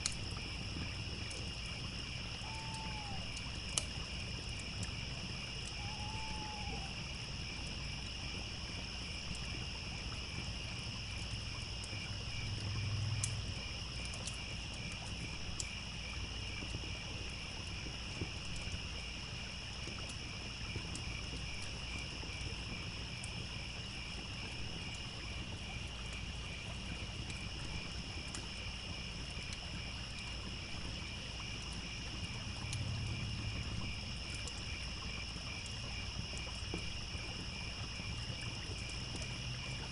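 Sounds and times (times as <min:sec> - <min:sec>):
wood fire crackling: 0:00.0 - 0:06.9, 0:07.6 - 0:19.0, 0:19.8 - 0:32.9
crickets chirping: 0:00.0 - 0:39.9.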